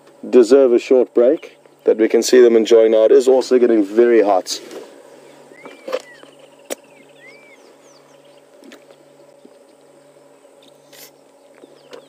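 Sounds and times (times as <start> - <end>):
steady low hum: 0.0 - 12.0
birds chirping and calling: 1.2 - 3.5, 5.1 - 12.0
whistled bird notes: 5.5 - 8.5.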